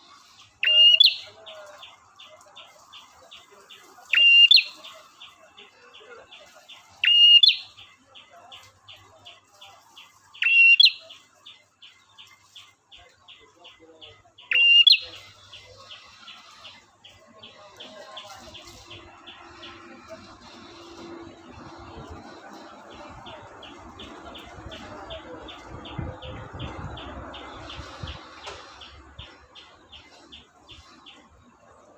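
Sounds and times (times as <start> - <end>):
bird calling in high chip notes: 0.6 - 1.4
bird whistle call: 0.6 - 1.4, 4.1 - 4.8, 7.0 - 7.8, 10.4 - 11.0, 14.5 - 15.2.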